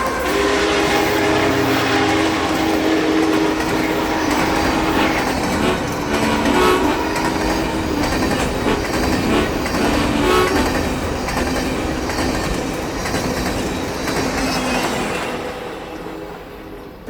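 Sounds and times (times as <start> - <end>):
horn-like tones: 0.0 - 11.2
rail clatter: 0.0 - 17.0
steam train rumbling past: 0.0 - 17.0.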